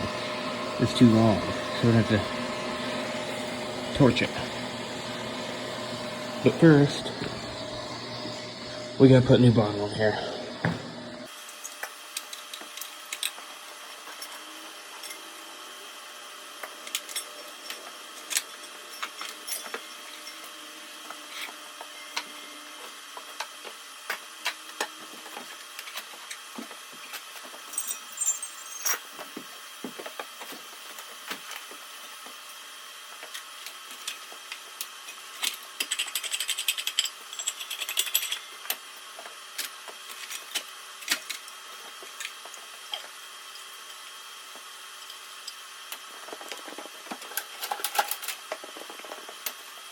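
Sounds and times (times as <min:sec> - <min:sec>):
metal pieces clicking and clanking: 0:27.7 - 0:29.0, 0:35.4 - 0:38.8.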